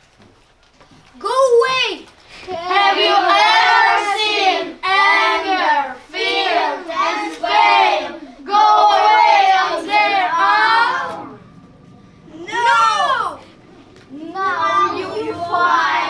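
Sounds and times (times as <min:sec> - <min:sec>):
children singing: 0:02.5 - 0:11.5, 0:12.3 - 0:16.0.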